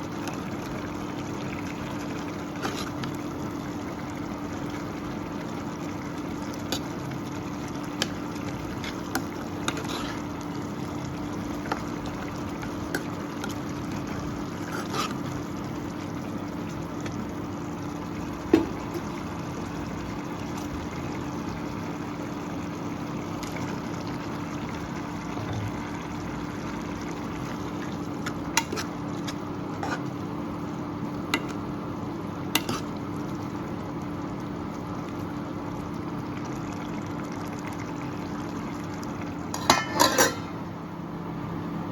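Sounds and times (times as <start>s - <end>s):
kitchen hum and hiss: 0.0s - 41.9s.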